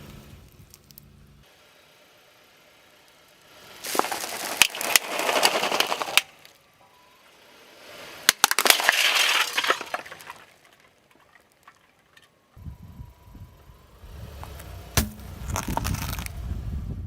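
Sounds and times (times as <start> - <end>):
tyre crushing crunchy objects: 3.8 - 6.4, 14.4 - 16.4.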